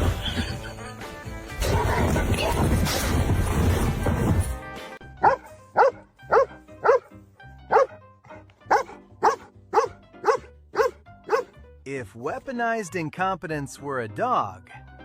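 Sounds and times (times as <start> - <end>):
faint background music: 0.0 - 15.0
dog barking: 5.2 - 7.1, 7.7 - 11.6.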